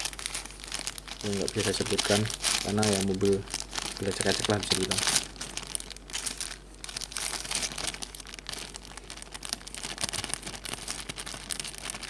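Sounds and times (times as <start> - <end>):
crinkling and rustling: 0.0 - 12.0.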